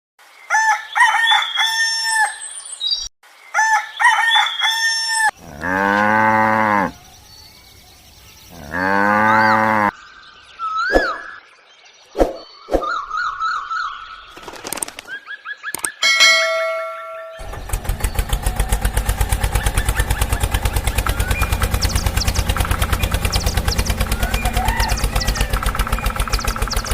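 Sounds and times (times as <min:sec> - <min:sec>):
rooster crowing: 0:03.6 - 0:05.8, 0:24.2 - 0:25.6
cow mooing: 0:05.4 - 0:07.0, 0:08.5 - 0:09.9
chirps whistles and clicks: 0:10.6 - 0:11.4, 0:12.0 - 0:16.0, 0:19.6 - 0:26.9.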